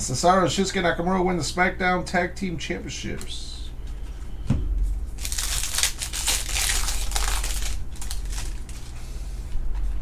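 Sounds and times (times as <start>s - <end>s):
card pack wrapper crinkling: 5.2s - 9.9s.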